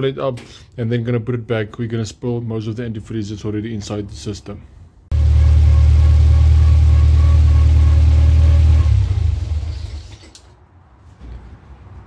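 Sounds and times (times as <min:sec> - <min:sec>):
car engine idling: 0:05.1 - 0:10.1.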